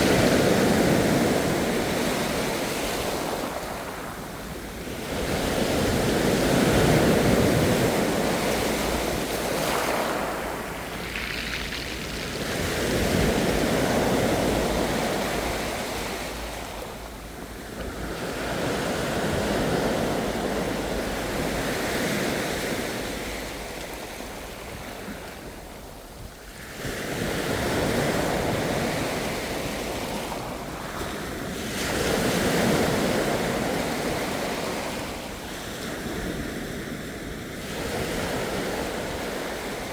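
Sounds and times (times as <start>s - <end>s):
ocean waves breaking: 0.0s - 25.8s.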